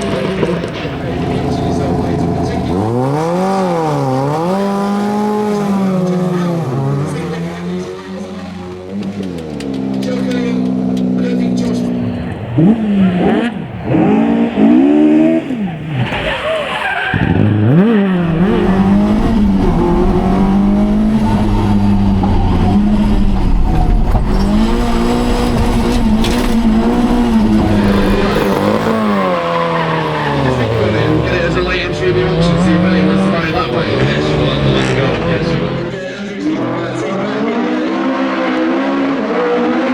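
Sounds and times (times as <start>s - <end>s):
car engine revving hard: 0.0s - 39.9s.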